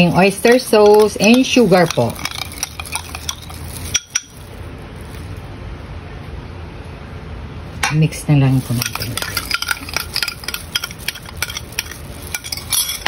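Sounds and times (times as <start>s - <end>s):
metal spoon clinking in glass bowl: 0.0s - 4.4s, 8.6s - 13.0s
steady low hiss: 0.0s - 13.0s.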